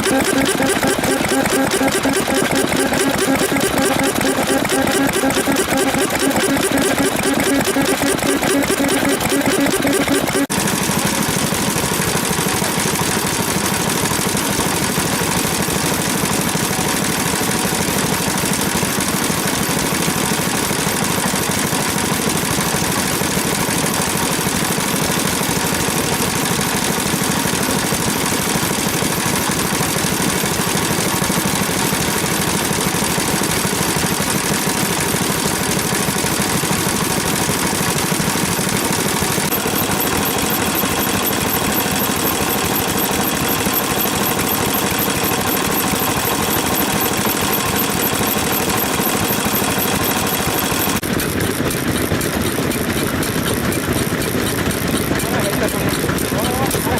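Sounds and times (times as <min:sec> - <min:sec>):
stationary engines idling: 0:00.0 - 0:11.8, 0:25.5 - 0:56.9.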